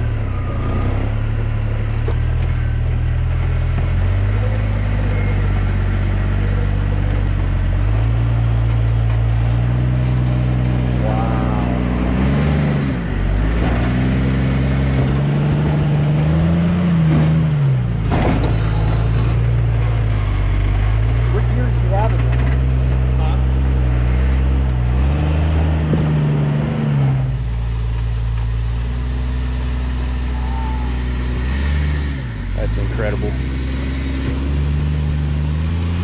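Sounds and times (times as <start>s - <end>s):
buggy engine revving: 0.0s - 36.0s.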